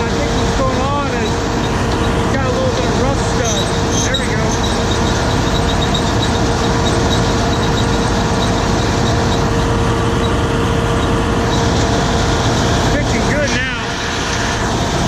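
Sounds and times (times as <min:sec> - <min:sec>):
combine harvester drone: 0:00.0 - 0:15.0
mechanical whine: 0:00.0 - 0:15.0.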